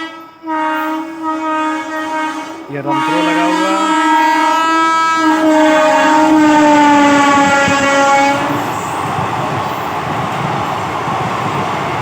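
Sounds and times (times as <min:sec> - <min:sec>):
locomotive horn blast: 0:00.0 - 0:08.7
passing train rumble: 0:00.0 - 0:12.0.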